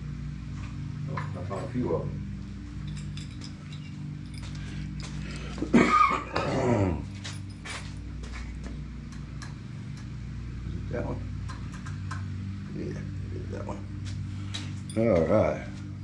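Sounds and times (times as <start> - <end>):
steady low hum: 0.0 - 16.0
metal screws clinking: 2.8 - 5.5.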